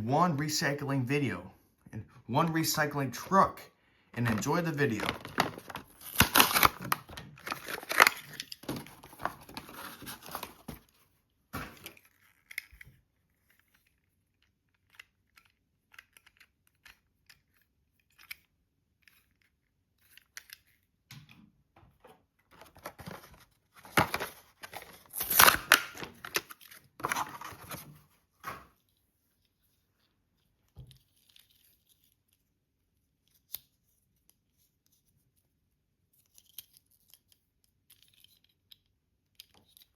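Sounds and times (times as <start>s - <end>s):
plastic and card crinkling: 4.2s - 20.8s, 22.5s - 28.0s.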